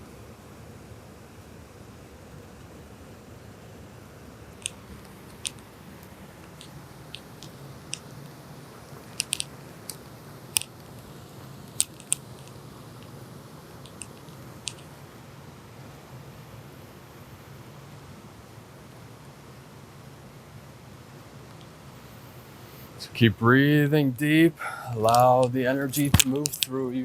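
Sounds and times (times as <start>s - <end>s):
sharp clicks and ticks: 4.6s - 8.4s, 9.1s - 11.1s, 11.7s - 13.1s, 13.8s - 14.9s, 24.9s - 26.7s.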